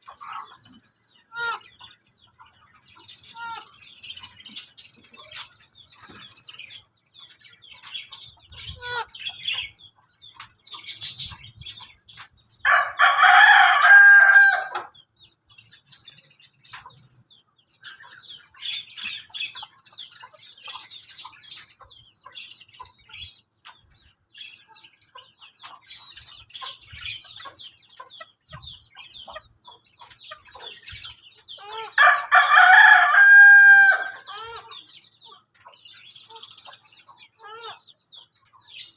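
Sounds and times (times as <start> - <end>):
soft clucks and chirps: 0.0 - 38.9
rooster crowing: 12.7 - 14.9, 31.9 - 34.3.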